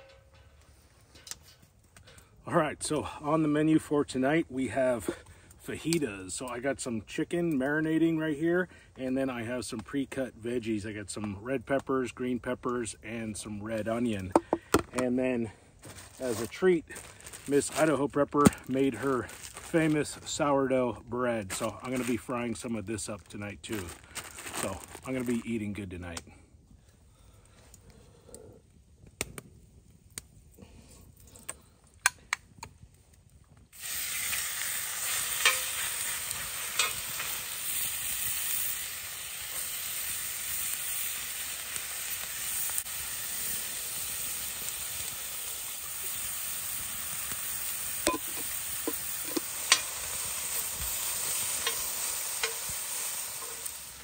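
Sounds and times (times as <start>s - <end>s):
food sizzling on a griddle: 33.7s - 54.0s.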